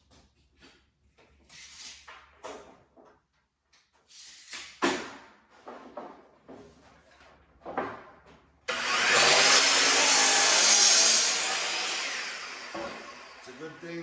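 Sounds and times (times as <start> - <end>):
boards knocking and clattering: 4.8 - 8.5, 12.6 - 13.2
power saw running: 8.7 - 14.0.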